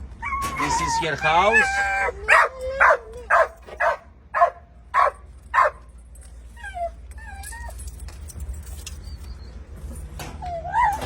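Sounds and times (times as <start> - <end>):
dog whining: 0.2 - 5.7, 6.6 - 8.1, 10.4 - 11.0
dog barking: 2.3 - 5.8.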